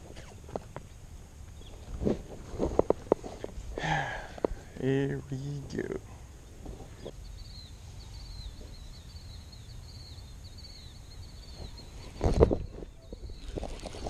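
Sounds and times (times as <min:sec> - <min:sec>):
bird chirping: 0:01.5 - 0:01.9, 0:04.8 - 0:14.0
wind rumble on microphone: 0:11.4 - 0:14.0.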